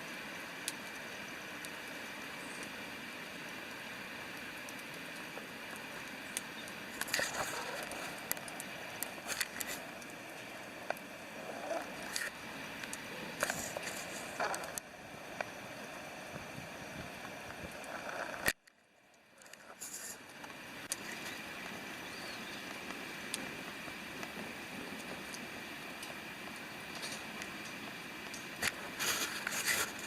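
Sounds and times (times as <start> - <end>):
campfire crackling and popping: 0.1 - 30.0
river rushing: 1.5 - 18.0.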